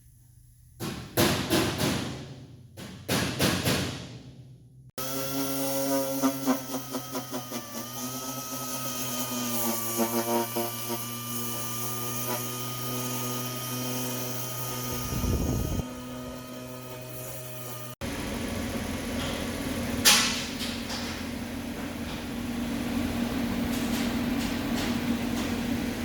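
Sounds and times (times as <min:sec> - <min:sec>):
power tool humming: 0:05.0 - 0:20.1.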